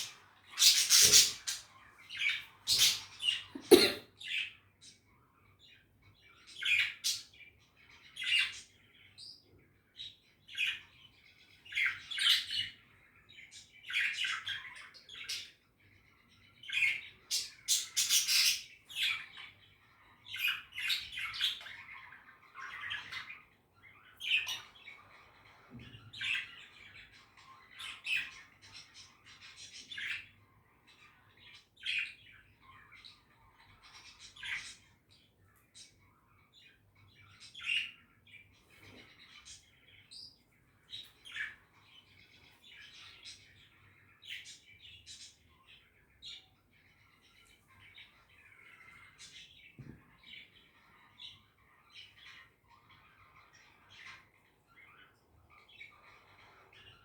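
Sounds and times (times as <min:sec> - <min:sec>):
budgerigar chirping: 0:00.0 - 0:01.6.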